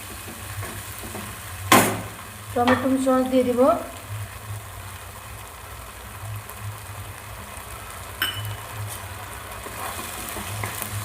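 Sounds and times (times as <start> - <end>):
sauce sizzling: 0.0 - 11.0
sharp clink: 8.2 - 8.6.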